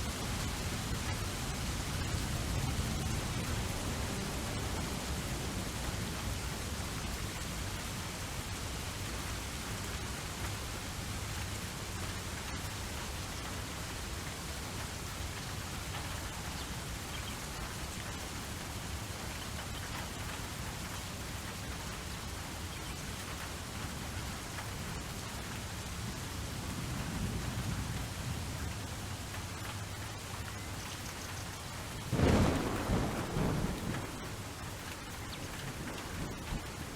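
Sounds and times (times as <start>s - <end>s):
steady rain falling: 0.0s - 36.9s
low rumble of thunder: 31.9s - 36.9s.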